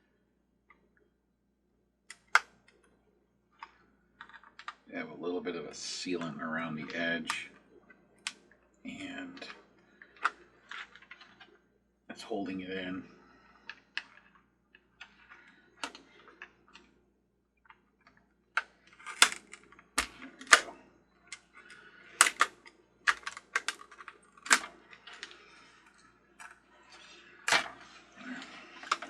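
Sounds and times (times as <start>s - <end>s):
plastic parts clicking and knocking: 2.1s - 2.9s, 3.5s - 4.9s, 8.2s - 11.6s, 13.5s - 17.0s, 17.6s - 29.0s
small tools being handled: 17.6s - 29.0s.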